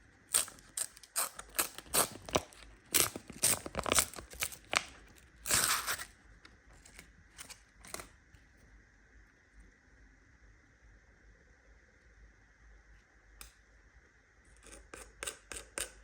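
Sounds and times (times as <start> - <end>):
packaging crackling: 0.3 - 6.1
packaging tearing: 0.3 - 6.1.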